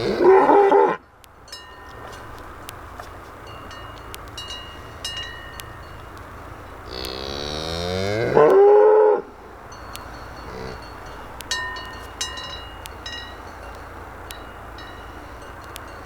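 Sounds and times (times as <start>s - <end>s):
cow mooing: 0.0s - 1.0s, 6.8s - 9.3s, 10.4s - 11.0s
short ringing clinks: 9.7s - 16.0s.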